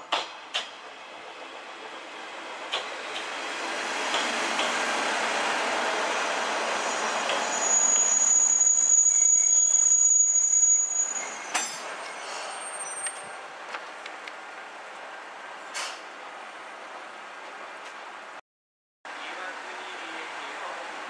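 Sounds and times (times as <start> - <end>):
train rumble: 0.0 - 7.6
railcar humming: 0.0 - 18.4, 19.1 - 21.0
train brakes squealing: 6.6 - 13.4.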